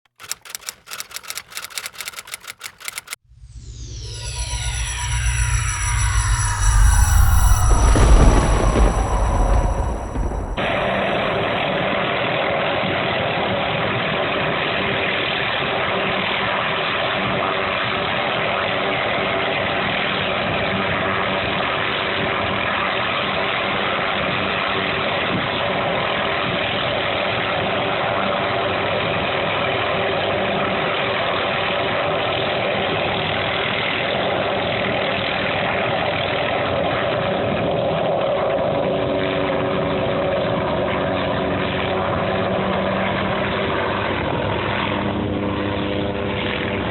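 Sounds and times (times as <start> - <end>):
helicopter engine and rotor drone: 0.2 - 12.2.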